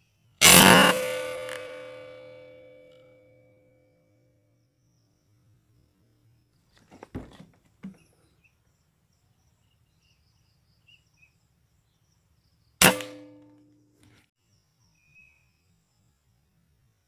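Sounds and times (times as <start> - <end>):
handling knocks and clicks: 6.7 - 8.1
faint bird chirps: 7.8 - 12.8, 13.7 - 17.0
air rifle shot: 12.8 - 13.4.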